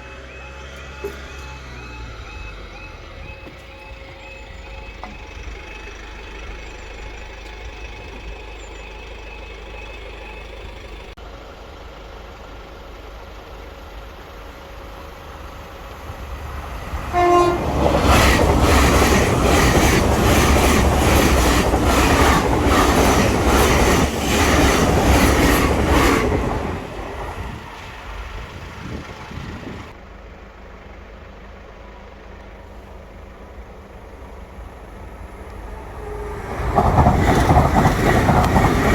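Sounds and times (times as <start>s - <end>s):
train wheels clattering: 16.5s - 29.0s, 35.3s - 38.9s
train horn: 17.0s - 19.8s, 35.5s - 37.0s.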